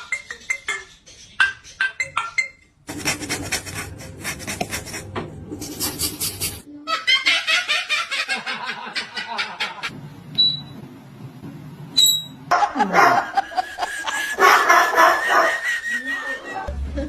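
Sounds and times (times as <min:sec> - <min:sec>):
person laughing: 0:12.5 - 0:16.7.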